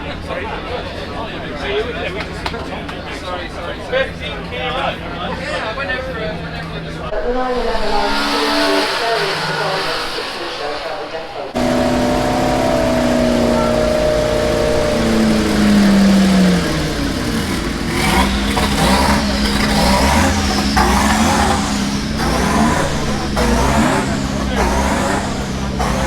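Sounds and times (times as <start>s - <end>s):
car engine revving: 6.1s - 26.0s.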